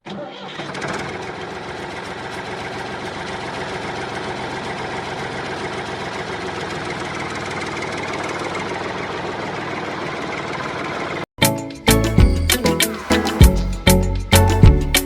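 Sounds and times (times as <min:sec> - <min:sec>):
engine idling: 0:00.5 - 0:11.2.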